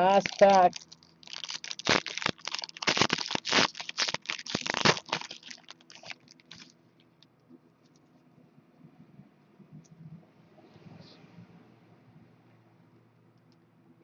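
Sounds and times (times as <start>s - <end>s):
plastic foil wrapper crinkling: 0.0s - 6.8s.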